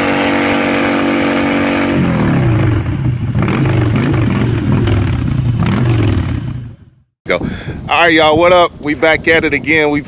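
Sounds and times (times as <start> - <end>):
motorcycle engine revving and idling: 0.0 - 7.1.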